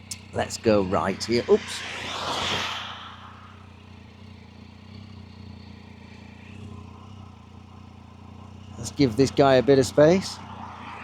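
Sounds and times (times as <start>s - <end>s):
wind rush: 0.2s - 4.1s, 10.2s - 11.0s
motorcycle engine running: 3.7s - 10.5s.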